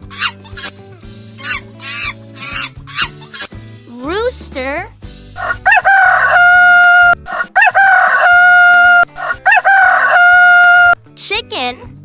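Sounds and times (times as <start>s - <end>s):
rooster crowing: 5.4s - 11.0s.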